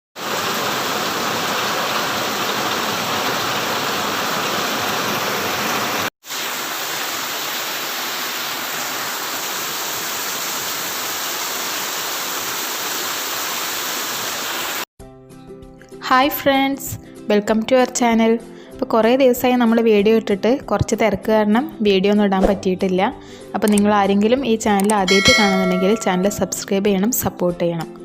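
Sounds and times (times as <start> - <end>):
heavy rain pouring: 0.2 - 14.8.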